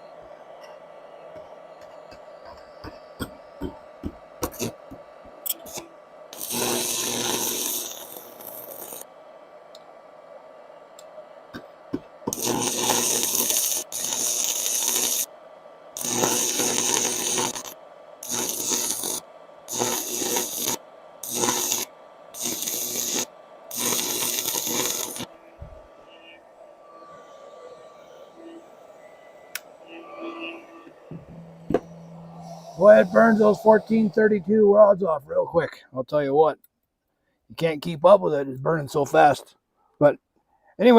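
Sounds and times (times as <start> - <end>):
welding arc crackling and hissing: 1.3 - 9.9, 11.0 - 27.4, 31.1 - 35.0.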